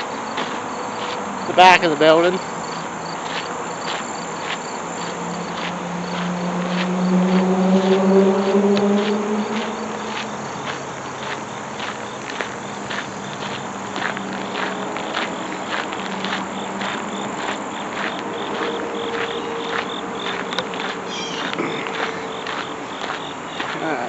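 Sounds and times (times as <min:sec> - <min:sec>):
insects scraping pulses: 0:00.0 - 0:24.0
thin high insect chirr: 0:18.5 - 0:23.9.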